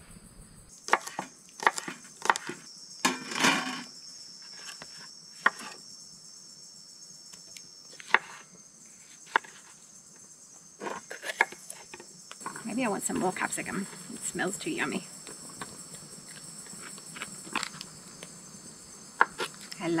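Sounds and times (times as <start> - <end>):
insect droning: 0.0 - 20.0
knife chopping vegetables: 0.9 - 2.6.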